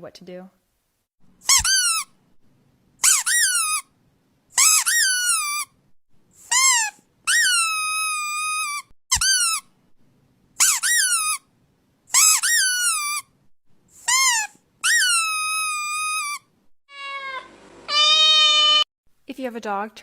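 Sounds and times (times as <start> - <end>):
squeaky toy squeaking: 1.4 - 2.2, 3.0 - 3.9, 4.6 - 5.8, 6.4 - 9.7, 10.6 - 11.5, 12.1 - 13.3, 14.0 - 18.9.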